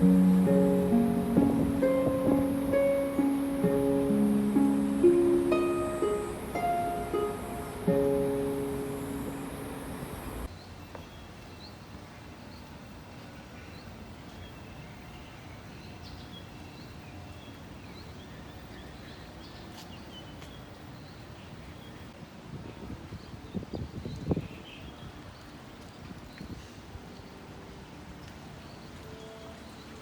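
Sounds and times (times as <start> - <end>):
ukulele music: 0.0 - 9.8
outdoor hiss: 0.0 - 22.5.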